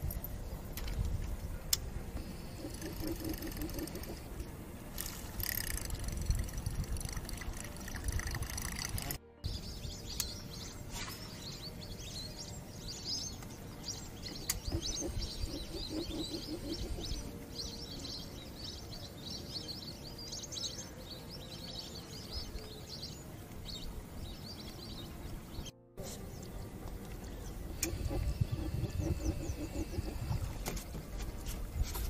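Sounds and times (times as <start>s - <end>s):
small birds chirping: 0.0s - 4.5s, 9.4s - 32.0s
steady low rumble: 23.7s - 32.0s.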